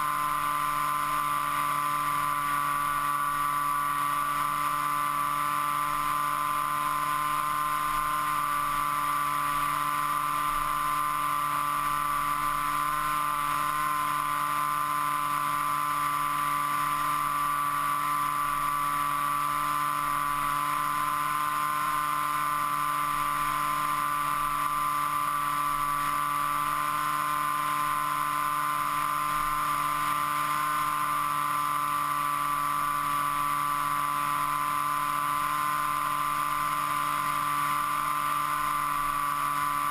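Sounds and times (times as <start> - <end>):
model aircraft motor whine: 0.0 - 39.9.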